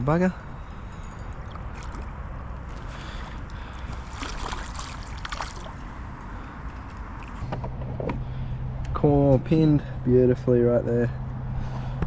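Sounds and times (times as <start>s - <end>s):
water lapping and trickling: 0.4s - 7.5s.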